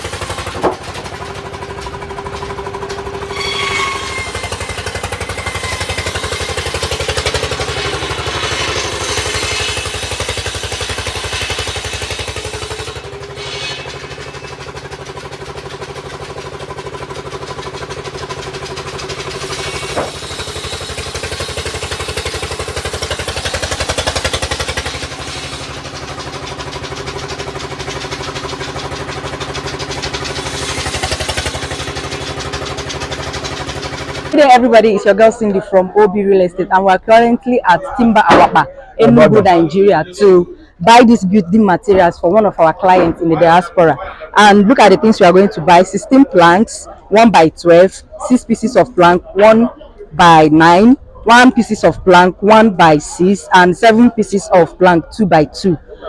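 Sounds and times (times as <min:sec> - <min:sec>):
vehicle engine running: 0:11.9 - 0:19.6, 0:22.5 - 0:34.6.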